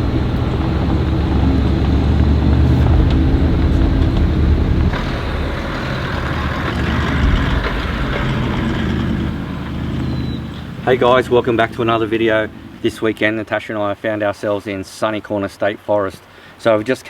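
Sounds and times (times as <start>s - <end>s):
vehicle engine rumble: 0.0s - 13.6s.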